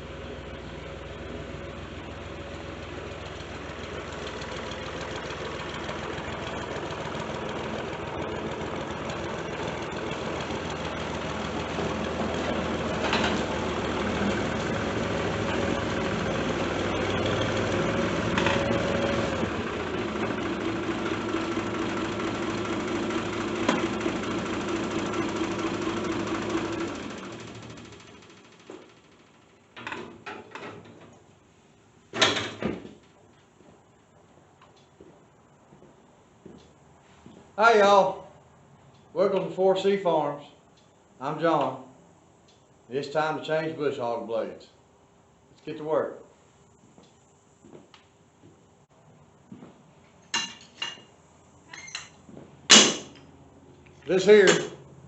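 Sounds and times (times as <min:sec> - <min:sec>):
tractor engine running: 0:00.0 - 0:31.4.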